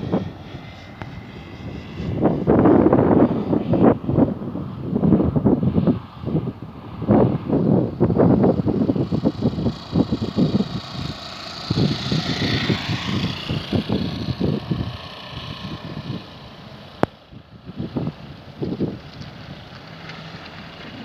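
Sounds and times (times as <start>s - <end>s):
wind buffeting microphone: 0.0s - 21.0s
heavy truck passing: 8.0s - 17.1s.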